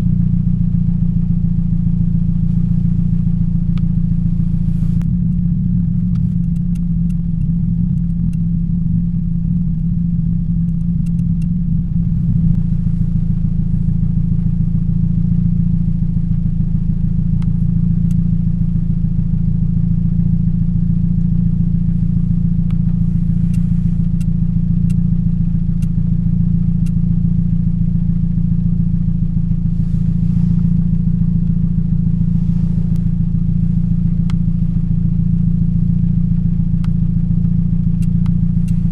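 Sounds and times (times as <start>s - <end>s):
car engine idling with misfire: 0.0s - 38.9s.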